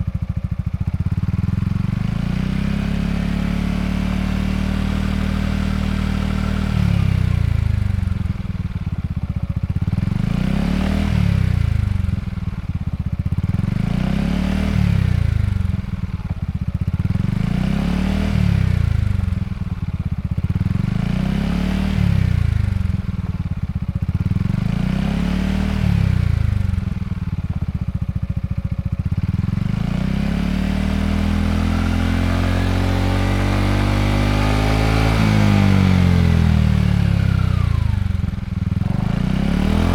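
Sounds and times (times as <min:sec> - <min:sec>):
scooter engine revving: 0:00.3 - 0:23.4, 0:24.0 - 0:39.9.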